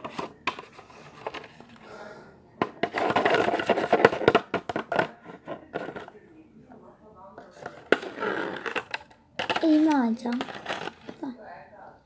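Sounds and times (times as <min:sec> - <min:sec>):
slime scraping and rustling: 0:07.5 - 0:11.3.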